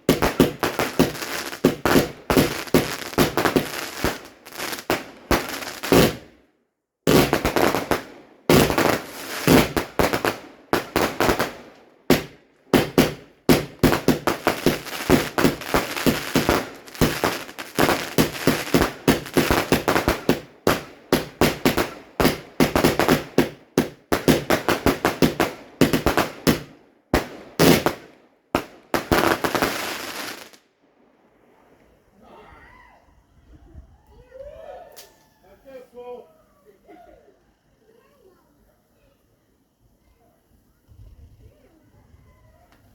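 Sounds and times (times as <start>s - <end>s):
fireworks bangs and crackles: 0.0s - 6.4s, 7.1s - 30.6s.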